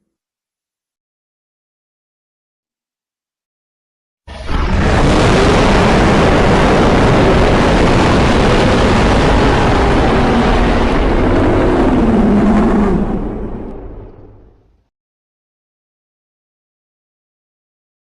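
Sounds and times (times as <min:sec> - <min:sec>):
monster roar: 0:04.3 - 0:13.7
low drone: 0:04.3 - 0:14.7.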